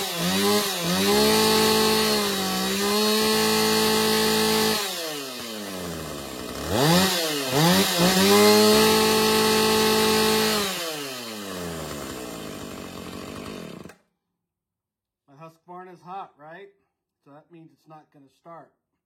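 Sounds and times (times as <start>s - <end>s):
chainsaw engine revving: 0.0s - 14.0s.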